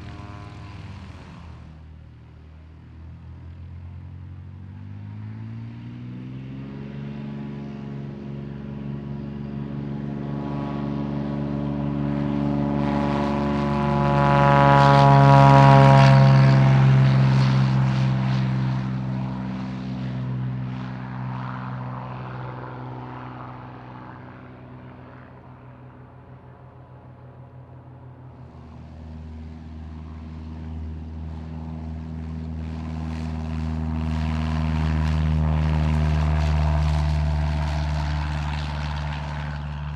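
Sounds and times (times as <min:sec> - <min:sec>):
propeller engine drone: 0:00.0 - 0:39.9
propeller plane flying past: 0:00.0 - 0:39.9.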